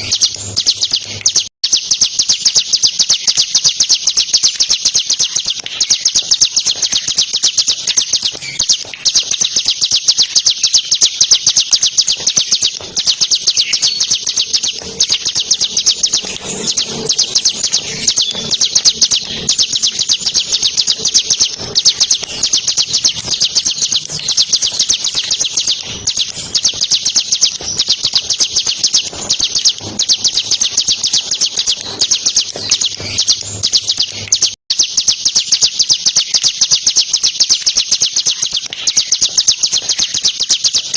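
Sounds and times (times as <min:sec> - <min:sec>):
bird singing fast high chirps: 0:00.0 - 0:40.9.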